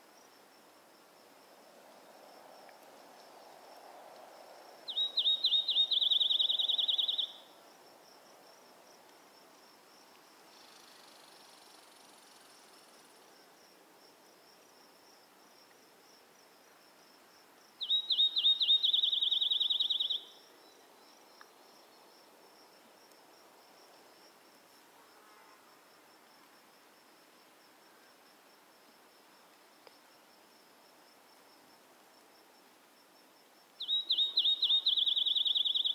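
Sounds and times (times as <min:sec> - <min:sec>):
faint insect chirring: 0:00.0 - 0:35.9
bird trilling song: 0:04.9 - 0:07.5, 0:17.8 - 0:20.4, 0:33.8 - 0:35.9.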